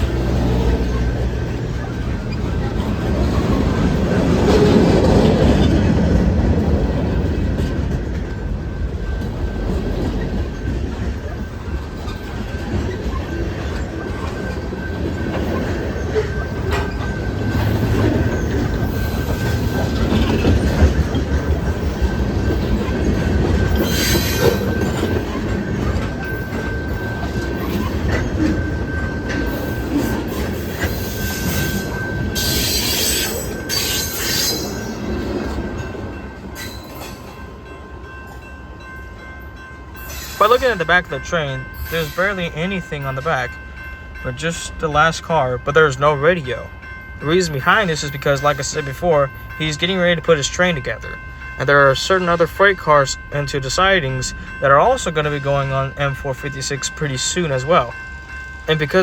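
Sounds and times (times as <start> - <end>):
train wheel squeal: 0.0 - 37.5, 40.0 - 41.0
train wheels rumbling on rails: 0.0 - 59.0.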